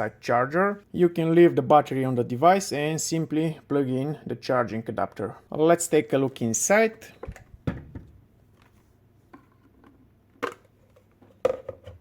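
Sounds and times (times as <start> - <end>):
plastic clicks and knocks: 9.3 - 12.0.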